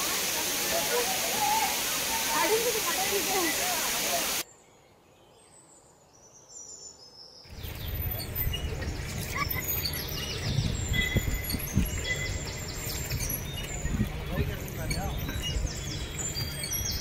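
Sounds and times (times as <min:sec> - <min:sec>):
birds chirping and trilling: 0:00.1 - 0:17.0
steady low rumble: 0:07.5 - 0:17.0.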